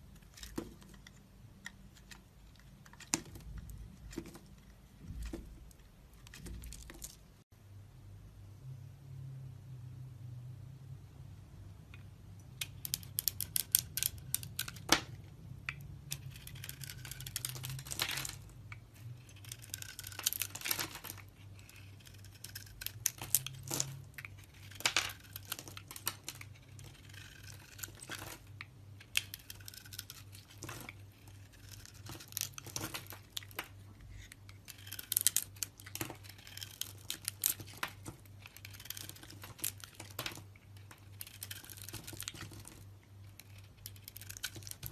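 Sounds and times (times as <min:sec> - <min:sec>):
crisp crackling clicks: 0:12.6 - 0:44.9
knife scraping soap: 0:16.1 - 0:17.8, 0:19.2 - 0:28.4, 0:29.1 - 0:33.2, 0:33.8 - 0:40.2, 0:41.1 - 0:42.6.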